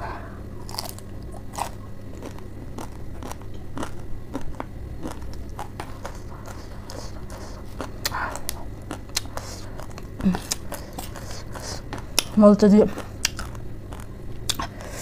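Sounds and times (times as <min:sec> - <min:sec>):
faint low hum: 0:00.0 - 0:15.0
crunchy chewing: 0:00.6 - 0:15.0.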